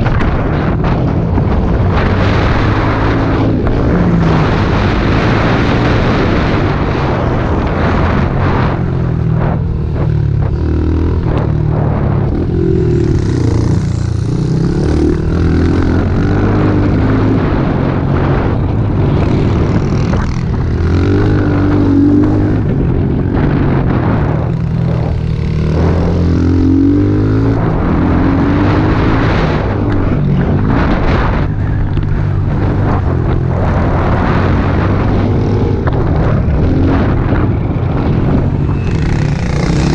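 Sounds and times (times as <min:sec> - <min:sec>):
small motorbike engine revving: 0:38.6 - 0:39.9.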